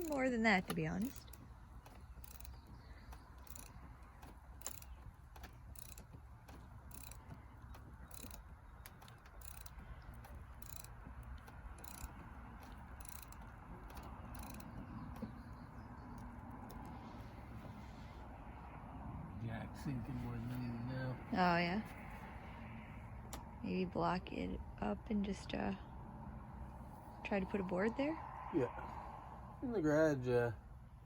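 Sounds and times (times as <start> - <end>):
lifting jack clicking: 0.0 - 15.4.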